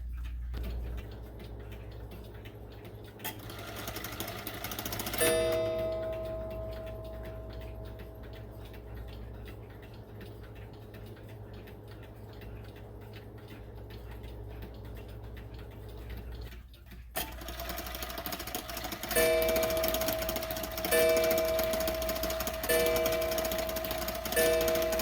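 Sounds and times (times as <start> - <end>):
mantel clock ticking: 0.0 - 25.0
clock strike ringing: 3.4 - 8.8, 17.3 - 25.0.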